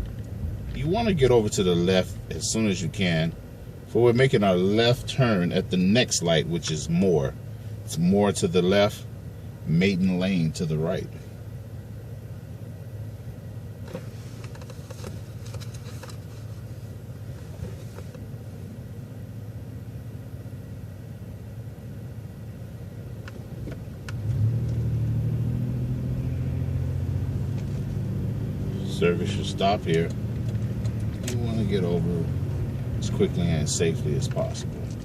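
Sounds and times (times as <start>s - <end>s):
bus engine: 0.0s - 35.0s
road rumble: 0.0s - 35.0s
faint clicks and rattles: 13.9s - 16.5s.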